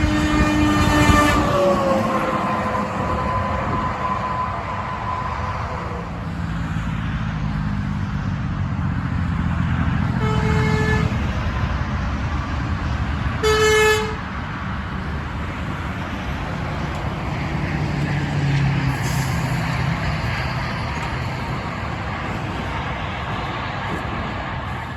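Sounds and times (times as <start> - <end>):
truck horn blasts: 0.0 - 5.5, 10.1 - 11.4, 13.4 - 14.3
traffic noise: 0.0 - 24.9.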